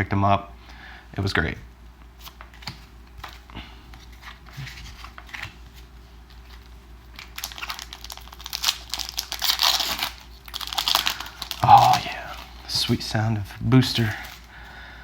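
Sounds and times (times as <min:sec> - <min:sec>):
foil wrapper crinkling: 0:06.3 - 0:13.1.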